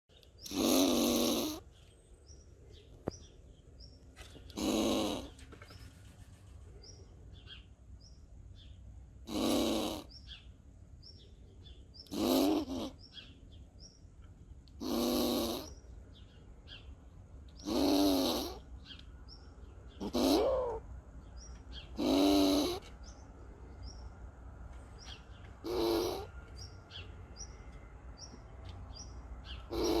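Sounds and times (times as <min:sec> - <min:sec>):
squirrel growling calls: 0:00.4 - 0:01.7, 0:04.4 - 0:05.4, 0:09.2 - 0:10.4, 0:12.0 - 0:13.3, 0:14.7 - 0:15.8, 0:17.6 - 0:19.0, 0:19.9 - 0:20.9, 0:21.7 - 0:22.9, 0:25.0 - 0:26.3, 0:29.4 - 0:30.0.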